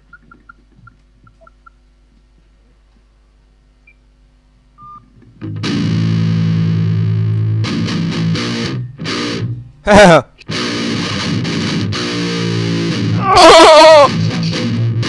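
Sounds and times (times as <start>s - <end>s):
distorted electric guitar chords: 5.3s - 15.0s.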